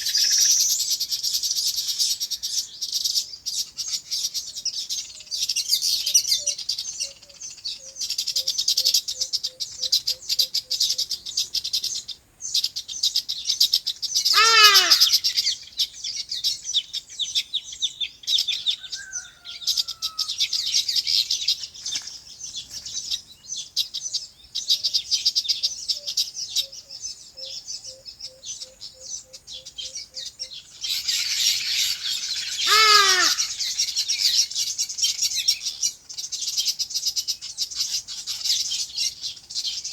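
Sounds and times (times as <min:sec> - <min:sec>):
birds chirping: 0:00.0 - 0:39.9
loud downward-sliding bird calls: 0:14.3 - 0:15.4, 0:30.8 - 0:34.0.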